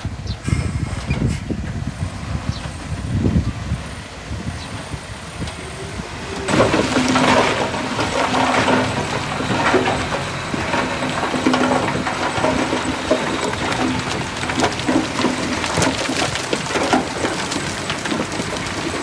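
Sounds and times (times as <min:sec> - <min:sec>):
steady low hum: 0:00.0 - 0:08.2
heavy machinery running: 0:00.0 - 0:16.8
dense crackling and clatter: 0:00.0 - 0:19.0.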